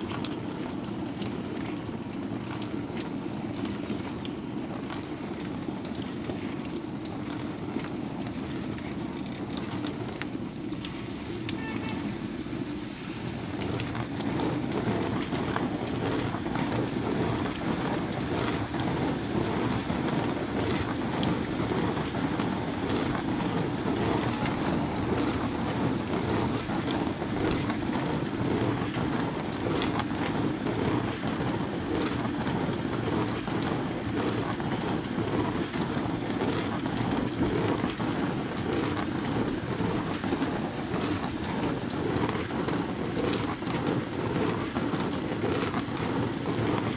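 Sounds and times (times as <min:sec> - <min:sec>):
water swishing in washing machine: 0:00.0 - 0:46.9.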